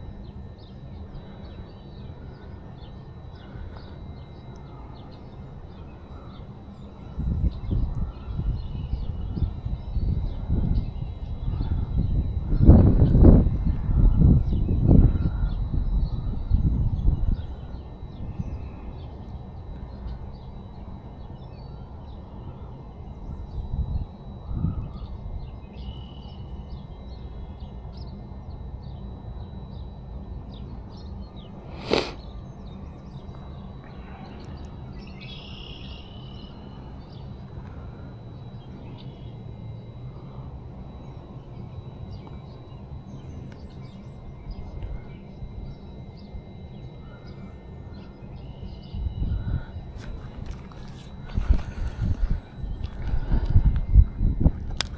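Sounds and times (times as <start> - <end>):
low outdoor background noise: 0.0 - 54.9
short bird chirps: 31.7 - 32.3.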